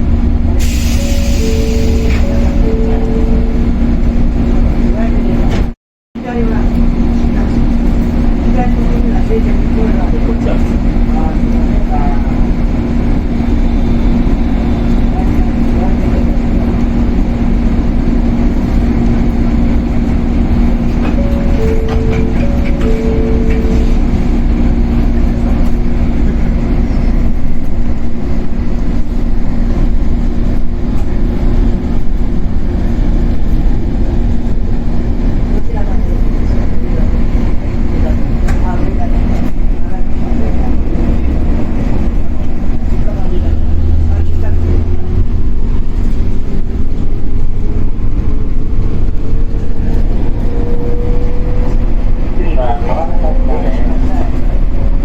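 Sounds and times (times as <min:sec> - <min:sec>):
train wheels rumbling: 0:00.0 - 0:55.0
short high tone: 0:00.8 - 0:03.7.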